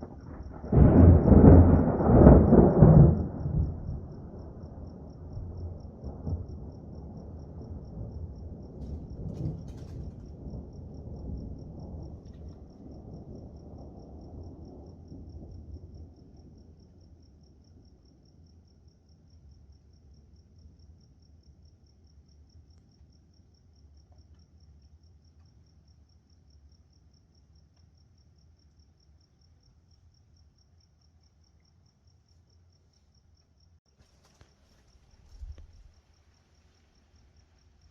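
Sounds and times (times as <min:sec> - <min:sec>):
thunder rumbling: 0:00.0 - 0:16.8, 0:35.0 - 0:36.3
cricket chirping: 0:00.0 - 0:37.9.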